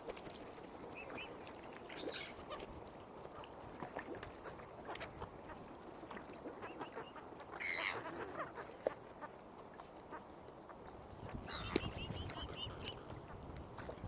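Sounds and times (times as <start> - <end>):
waterfowl calling: 6.5 - 9.4, 11.4 - 13.4
soft ticks: 13.5 - 14.0.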